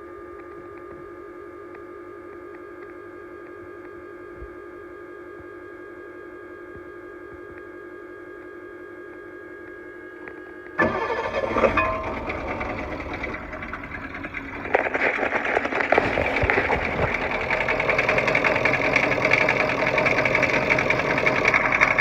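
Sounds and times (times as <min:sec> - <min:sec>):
diesel engine clattering: 0:10.8 - 0:22.0.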